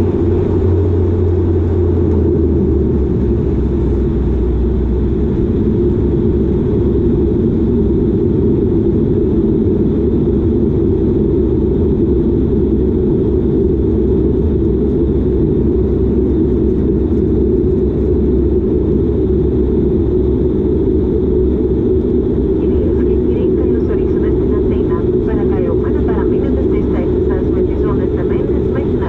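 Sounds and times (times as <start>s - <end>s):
turboprop cabin drone: 0.0s - 29.0s.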